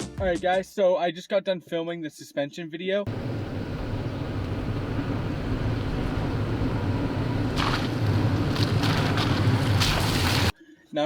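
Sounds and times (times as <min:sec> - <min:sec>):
car engine and road rumble: 0:03.1 - 0:10.6.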